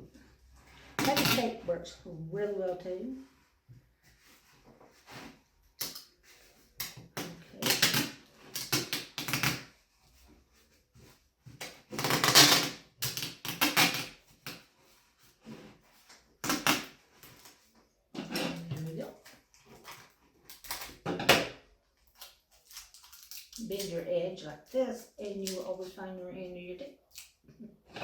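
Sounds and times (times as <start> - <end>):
packing tape ripping off roll: 0.9 - 1.6, 5.7 - 9.8, 11.5 - 14.8, 16.1 - 24.0.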